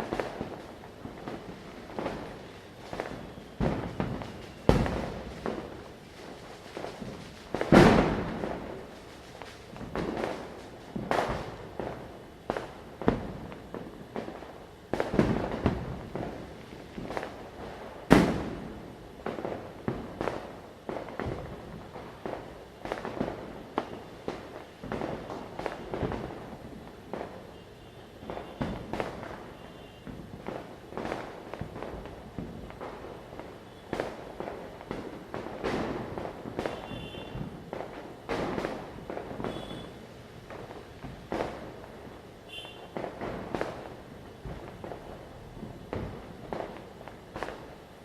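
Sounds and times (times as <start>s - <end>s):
firecrackers banging: 0.0s - 48.0s.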